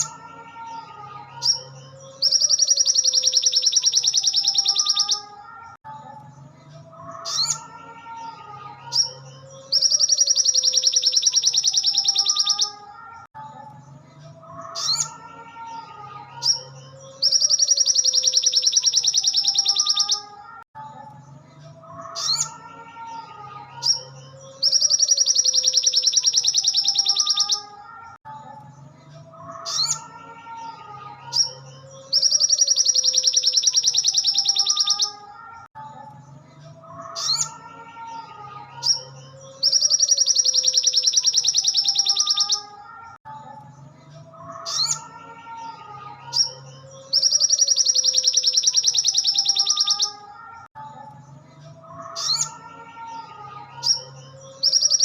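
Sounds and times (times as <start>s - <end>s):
bird high fast trill: 2.2s - 5.3s, 9.8s - 12.7s, 32.1s - 35.1s, 39.6s - 42.7s, 47.1s - 50.2s.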